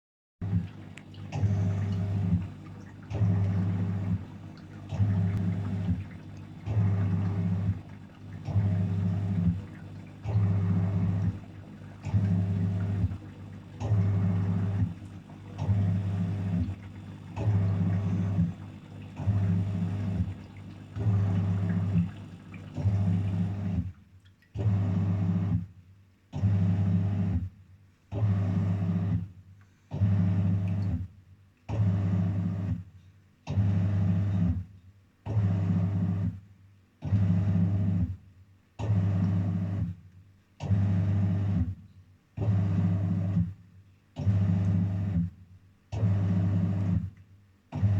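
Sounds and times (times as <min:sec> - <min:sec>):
water swishing: 0:00.4 - 0:23.7
washing machine motor humming: 0:00.4 - 0:24.0, 0:24.6 - 0:25.6, 0:29.9 - 0:31.0, 0:31.7 - 0:32.8, 0:40.6 - 0:41.7, 0:42.4 - 0:43.4, 0:44.2 - 0:47.1.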